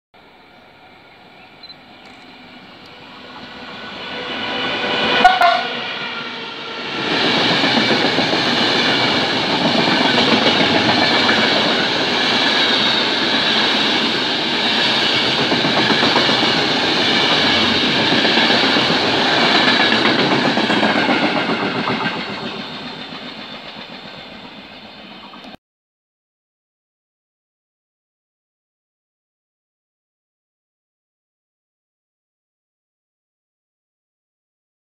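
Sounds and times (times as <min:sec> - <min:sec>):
electric locomotive whine: 0:00.2 - 0:25.6
train rushing and rail clatter: 0:00.2 - 0:25.6
train horn blast: 0:03.1 - 0:06.8.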